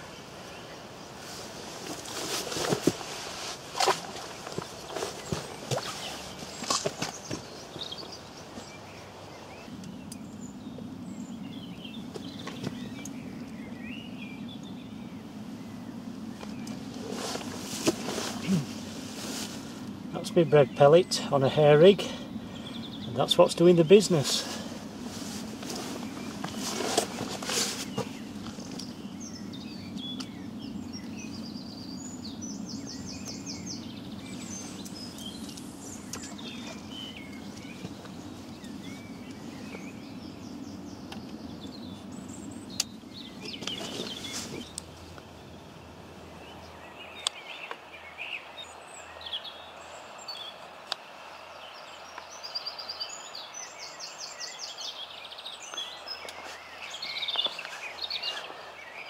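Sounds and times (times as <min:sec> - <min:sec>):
songbirds singing: 0:00.0 - 0:59.0
low steady rumble: 0:07.5 - 0:47.2.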